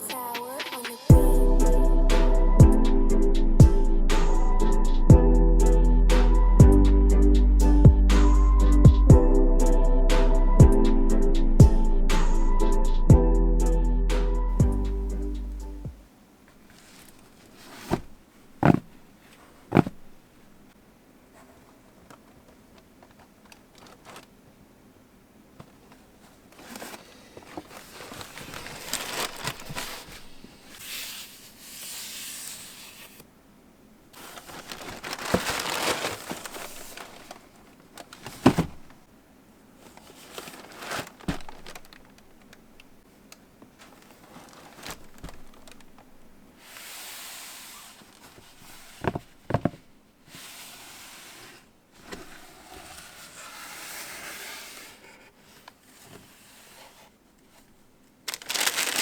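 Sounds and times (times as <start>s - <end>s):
paper rustling and crinkling: 16.6s - 20.2s, 21.4s - 24.4s, 25.6s - 33.2s, 34.1s - 39.1s, 39.8s - 42.8s, 43.6s - 46.2s, 55.4s - 59.0s.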